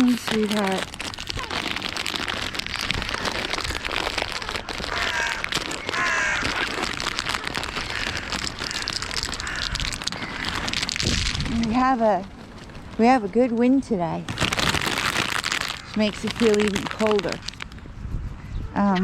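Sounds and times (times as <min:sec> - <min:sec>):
rustling clicks: 0:00.0 - 0:13.0
wind noise: 0:00.0 - 0:19.0
crow cawing: 0:03.0 - 0:10.8.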